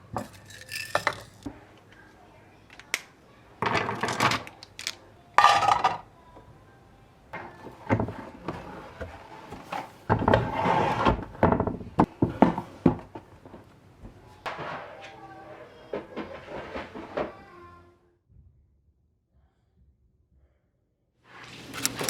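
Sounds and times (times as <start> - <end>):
objects rubbed scraped and set down: 7.5 - 11.5, 14.4 - 17.5.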